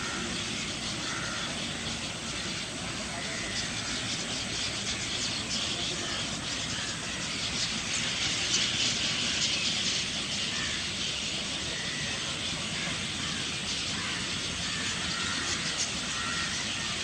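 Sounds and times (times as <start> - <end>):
flock of starlings chattering: 0.0 - 17.0.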